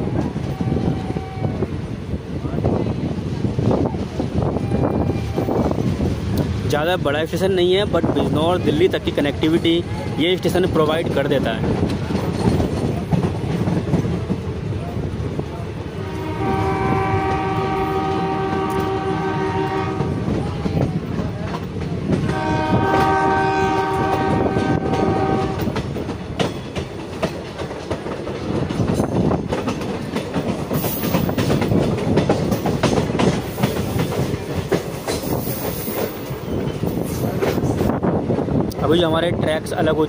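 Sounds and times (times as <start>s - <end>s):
train horn blasts: 0.2s - 1.7s, 4.5s - 5.7s, 16.0s - 20.3s, 22.3s - 25.8s
train wheels clattering over joints: 5.4s - 15.6s, 19.8s - 38.8s.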